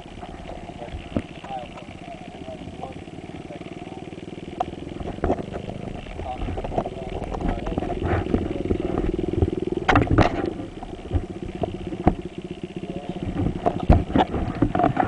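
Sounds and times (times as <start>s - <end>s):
dirt bike engine running: 0.0s - 15.0s
sharp knocks and clatter: 4.6s - 15.0s.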